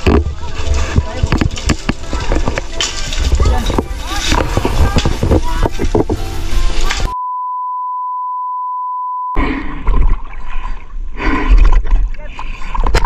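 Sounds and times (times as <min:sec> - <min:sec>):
busy outdoor sound: 0:00.0 - 0:07.2
test tone beep: 0:07.1 - 0:09.4.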